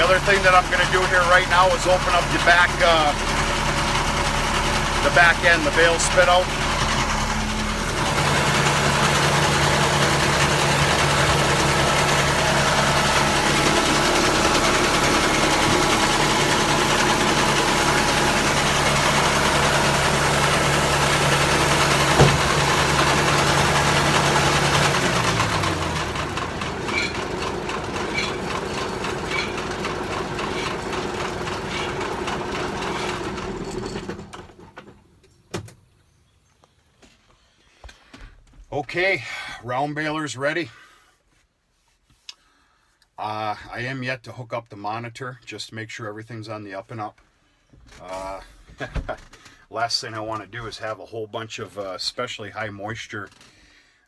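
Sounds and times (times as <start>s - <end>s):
round baler running: 0.0s - 35.1s
tractor engine running: 0.0s - 35.3s.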